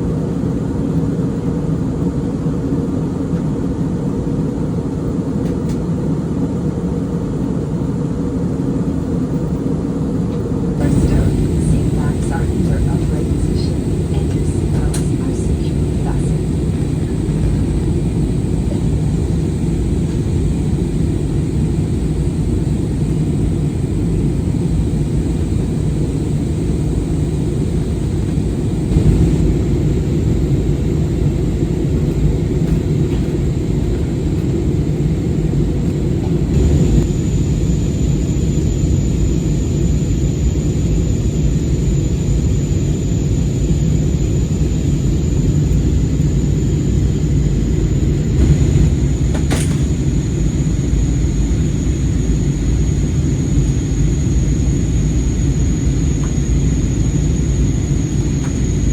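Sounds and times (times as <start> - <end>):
airliner cabin rumble: 10.4 - 38.7, 44.0 - 58.9
faint high whine: 10.8 - 33.8, 36.2 - 58.9.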